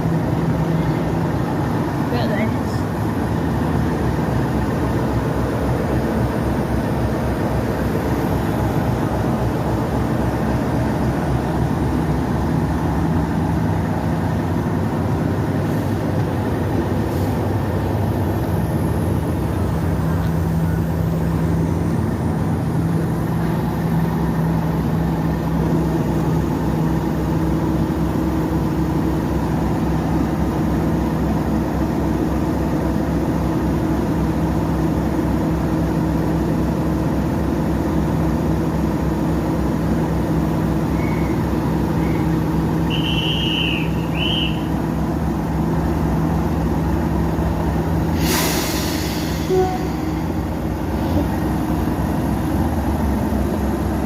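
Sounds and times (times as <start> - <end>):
diesel train engine rumble: 0.0 - 54.0.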